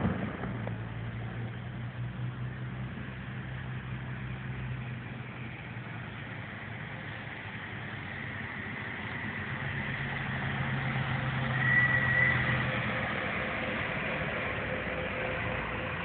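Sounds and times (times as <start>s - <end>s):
background noise haze: 0.0s - 16.0s
low engine-like hum: 0.0s - 16.0s.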